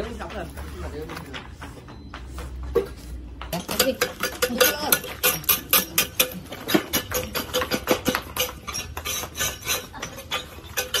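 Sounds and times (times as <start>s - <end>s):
ceramic pieces clinking: 3.6s - 11.0s.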